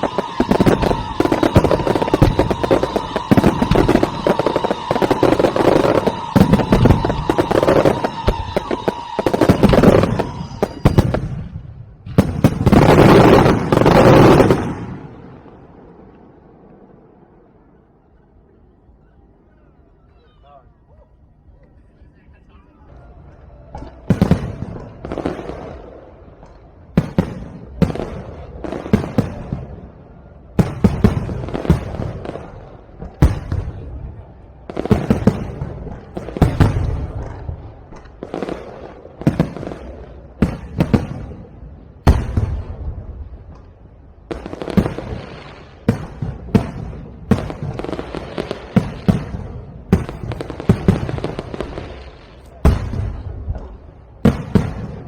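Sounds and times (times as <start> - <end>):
fireworks bursting with crackling tail: 0.0 - 19.5, 22.7 - 55.0.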